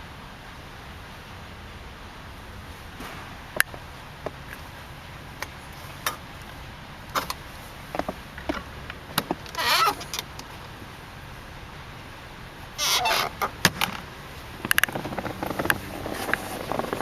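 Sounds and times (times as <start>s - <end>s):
light clicks and knocks: 5.4s - 10.5s, 13.4s - 17.0s
plastic trim squeak: 9.5s - 10.2s, 12.8s - 13.5s.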